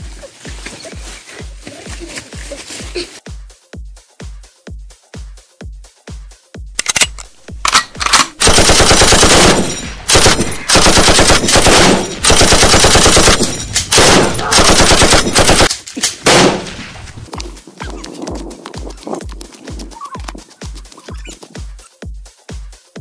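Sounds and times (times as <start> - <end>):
automatic machine-gun fire: 8.4 - 16.8.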